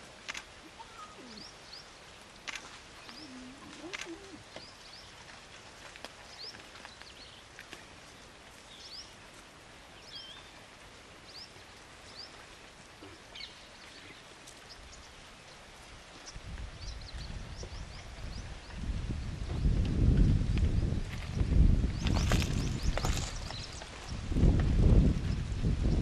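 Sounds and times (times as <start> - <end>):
steady background hiss: 0.0 - 19.3
small birds chirping: 0.3 - 5.4, 6.2 - 9.3, 9.9 - 24.4.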